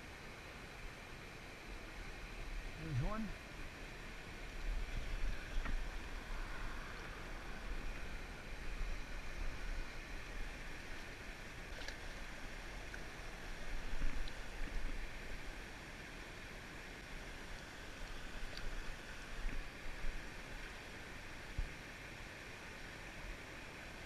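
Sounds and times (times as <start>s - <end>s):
river rushing: 0.0s - 24.0s
faint ticks: 11.7s - 12.0s.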